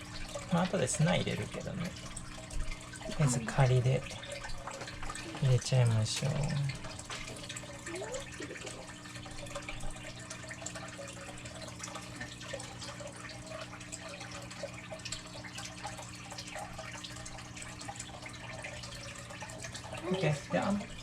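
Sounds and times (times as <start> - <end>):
aquarium filter humming: 0.0 - 21.0
water trickling and splashing: 0.0 - 21.0.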